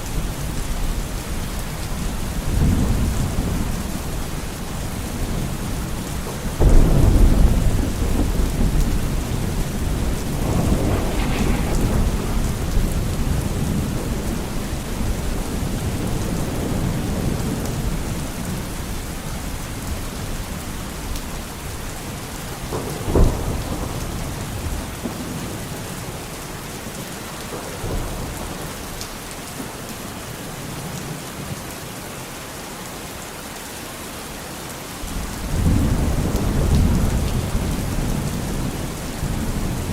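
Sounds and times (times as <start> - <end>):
steady rain: 0.0 - 39.9
rolling thunder: 2.4 - 19.0, 22.6 - 26.3, 35.1 - 39.9.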